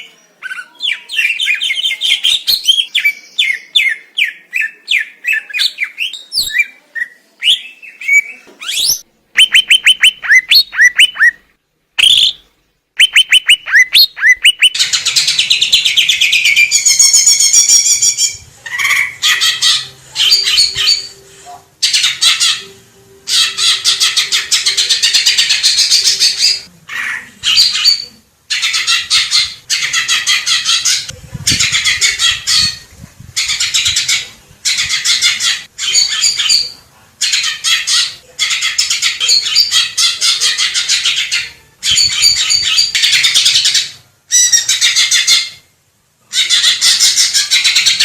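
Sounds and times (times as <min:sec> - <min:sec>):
bird singing whistled trills: 0:06.0 - 0:11.4, 0:12.0 - 0:12.4, 0:13.0 - 0:14.8.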